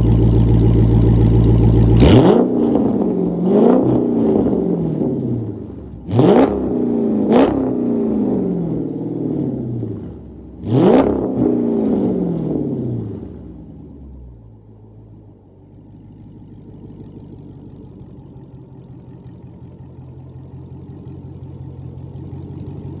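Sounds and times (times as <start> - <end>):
car engine rumbling: 0.0 - 23.0.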